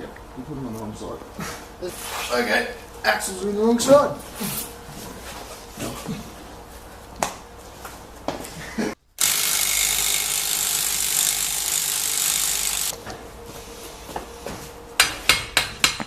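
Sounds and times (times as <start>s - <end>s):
air tool hissing: 9.2s - 12.9s.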